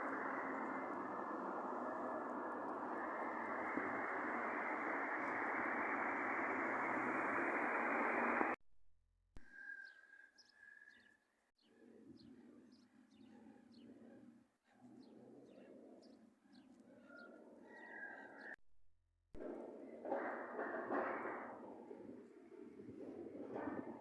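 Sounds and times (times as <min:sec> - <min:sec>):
outdoor ambience: 0:00.0 - 0:08.6, 0:09.4 - 0:18.6, 0:19.4 - 0:24.0
steady rushing noise: 0:00.0 - 0:08.6
small birds chirping: 0:09.5 - 0:18.5.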